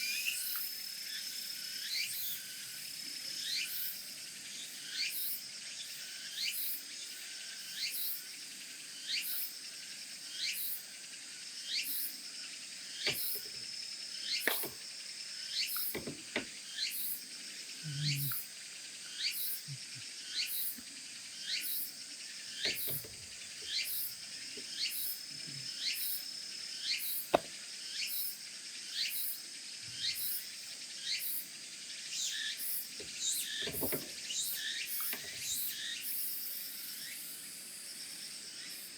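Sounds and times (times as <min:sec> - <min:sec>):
crickets chirping: 0:00.0 - 0:38.9
high insect whine: 0:00.0 - 0:38.9
soft knocks: 0:15.9 - 0:16.5.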